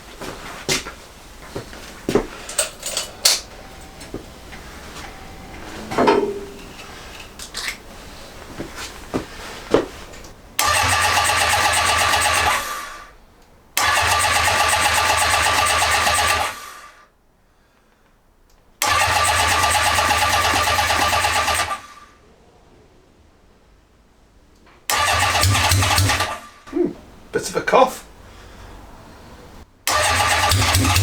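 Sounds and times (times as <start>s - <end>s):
electric starter cranking engine: 10.6s - 13.2s, 13.8s - 17.0s, 18.8s - 22.1s, 24.9s - 26.7s, 29.9s - 31.0s.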